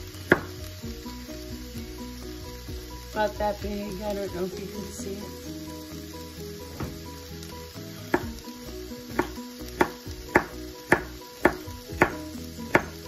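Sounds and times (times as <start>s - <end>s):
food sizzling in a pan: 0.0s - 13.0s
knife chopping on cutting board: 9.2s - 12.9s.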